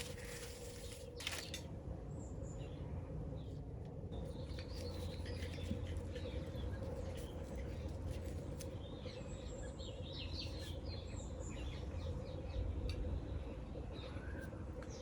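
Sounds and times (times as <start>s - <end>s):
low outdoor rumble: 0.0s - 15.0s
small birds chirping: 4.2s - 15.0s.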